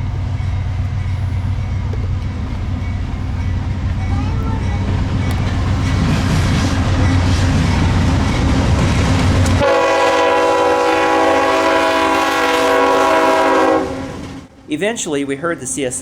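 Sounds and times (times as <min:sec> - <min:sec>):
freight train rumbling past: 0:00.0 - 0:16.0
locomotive horn chord: 0:09.6 - 0:14.4.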